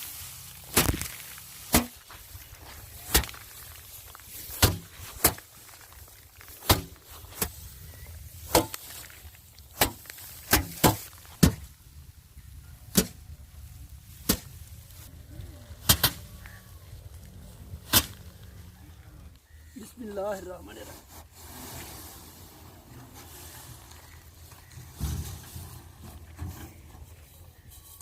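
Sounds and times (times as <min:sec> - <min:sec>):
rice bundles beaten by hand: 0:00.4 - 0:11.8, 0:14.1 - 0:14.7, 0:15.8 - 0:16.6, 0:17.8 - 0:18.4.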